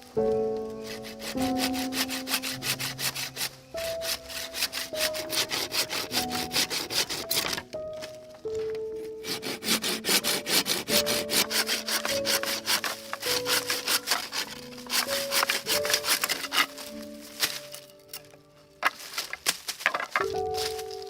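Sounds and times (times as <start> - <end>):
background music: 0.0 - 21.0
hand saw cutting wood: 0.8 - 7.6, 9.2 - 17.8.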